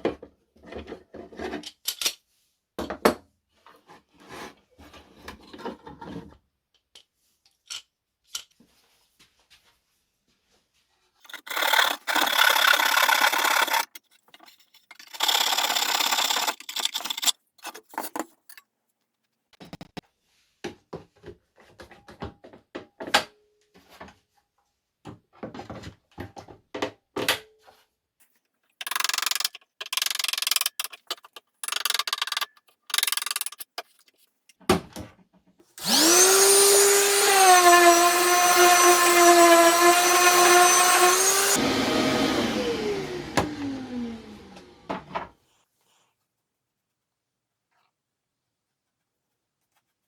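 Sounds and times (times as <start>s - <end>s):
small electric motor whining: 35.8s - 44.9s.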